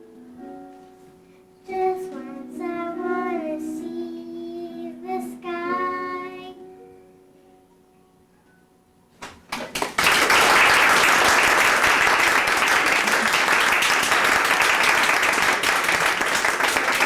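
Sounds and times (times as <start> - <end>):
audience applause: 9.5 - 17.0.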